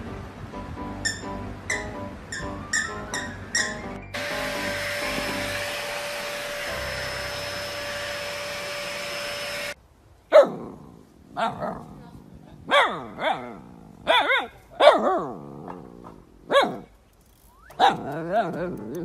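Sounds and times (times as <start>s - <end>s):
vacuum cleaner motor whine: 4.2s - 9.8s
puppy barking: 10.3s - 10.6s, 12.7s - 15.3s, 16.5s - 16.9s.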